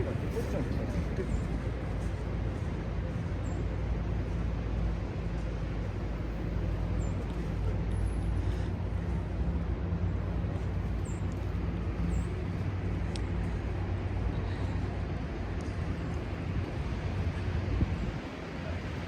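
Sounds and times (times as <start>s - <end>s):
vehicle engine hum: 0.0s - 19.0s.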